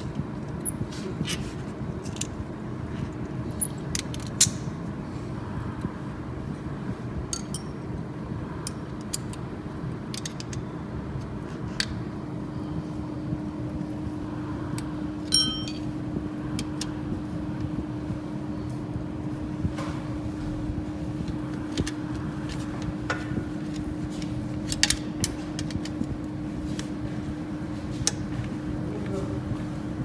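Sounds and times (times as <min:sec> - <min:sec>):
steady low hum: 0:00.0 - 0:30.0
metal tools clinking on engine parts: 0:07.3 - 0:07.8, 0:15.3 - 0:15.9
ringing metallic clink: 0:15.3 - 0:15.9.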